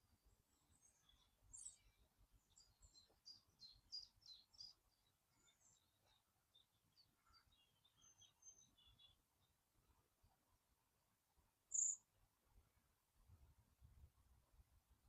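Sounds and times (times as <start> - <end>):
small birds chirping: 0.0 - 10.4, 11.7 - 12.1.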